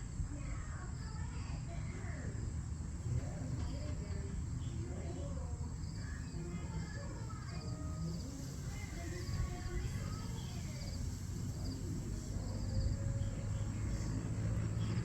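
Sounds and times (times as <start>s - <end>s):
high insect drone: 0.0s - 15.0s
insects chirping in trills: 0.0s - 15.0s
low rumble: 8.0s - 15.0s.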